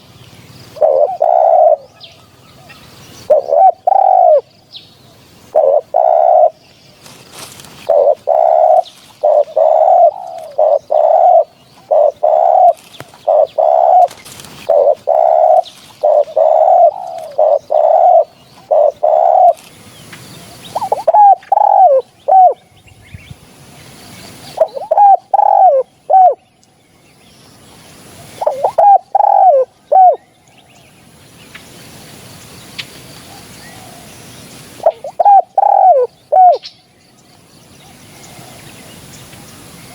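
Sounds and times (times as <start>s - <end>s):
dove cooing: 0.7s - 4.5s, 5.5s - 19.8s, 20.5s - 22.6s, 24.5s - 26.4s, 28.2s - 30.3s, 33.3s - 36.7s.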